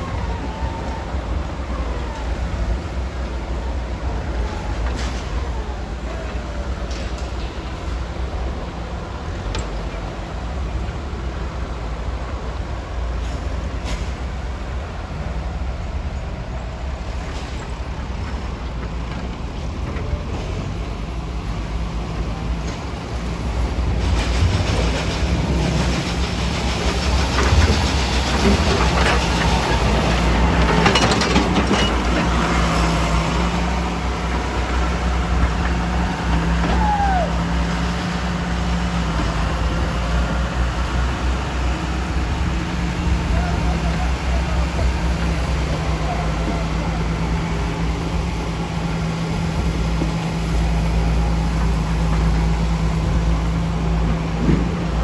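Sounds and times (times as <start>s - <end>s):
heavy diesel machinery droning: 0.0s - 55.0s
machinery clatter and grinding: 17.2s - 55.0s.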